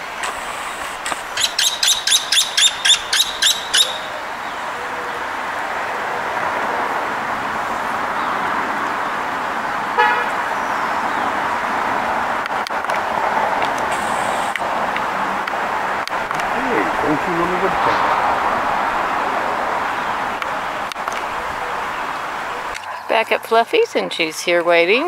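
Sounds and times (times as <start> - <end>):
steady background noise: 0.0 - 25.0
bird calling sharp notes: 1.2 - 5.2.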